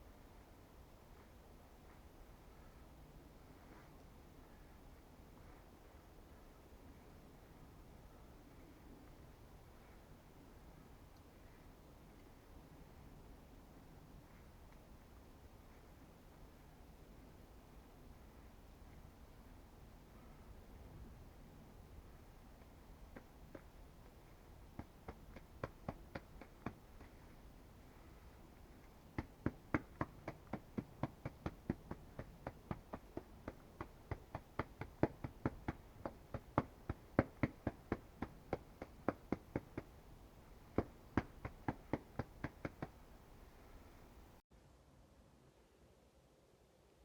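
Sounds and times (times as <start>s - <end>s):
rapid sharp taps: 23.0s - 43.3s.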